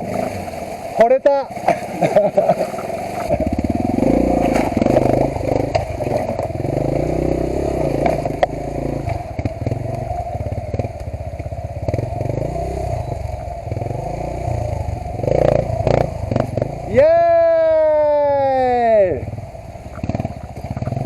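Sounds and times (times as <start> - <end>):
motorcycle engine revving: 0.0 - 21.0
motorcycle knocking on rocks: 3.2 - 6.8, 19.9 - 21.0.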